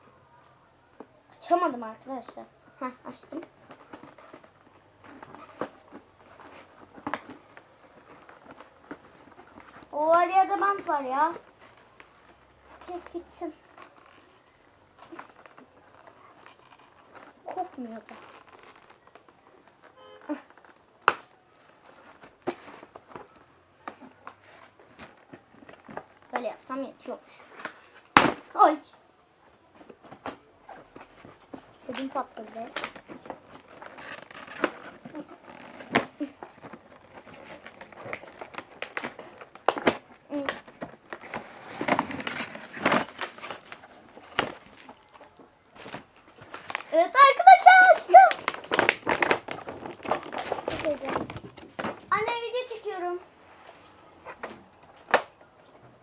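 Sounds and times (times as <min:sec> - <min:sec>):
packing tape crackling: 0:02.6 - 0:26.4, 0:29.2 - 0:52.8
tape snapping: 0:13.7 - 0:26.4, 0:29.8 - 0:46.9, 0:48.0 - 0:52.1.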